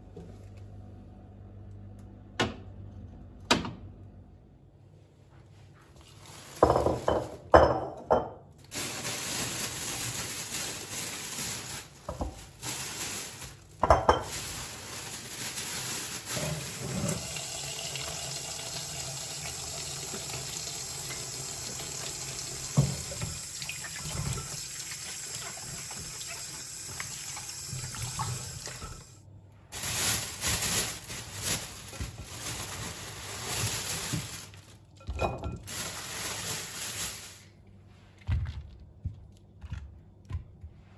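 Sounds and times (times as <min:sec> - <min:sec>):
tap running into a sink: 0:21.9 - 0:24.4.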